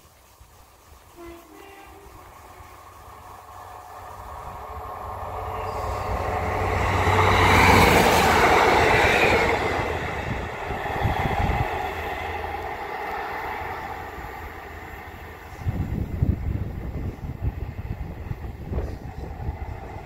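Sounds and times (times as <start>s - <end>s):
diesel train passing: 0.0s - 20.0s
wind rumble on microphone: 4.1s - 20.0s.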